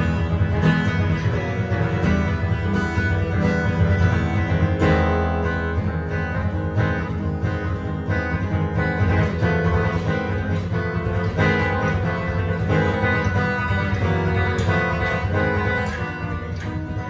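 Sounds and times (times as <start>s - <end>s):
jazz guitar improvising: 0.0s - 17.0s.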